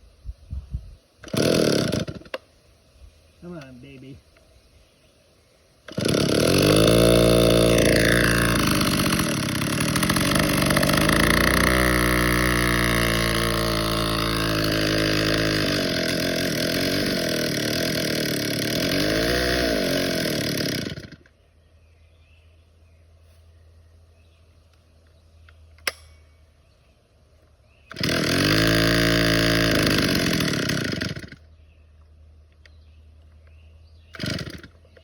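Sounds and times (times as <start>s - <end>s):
chainsaw cutting wood: 1.2s - 2.5s, 5.8s - 21.4s, 27.8s - 31.6s, 34.0s - 35.0s.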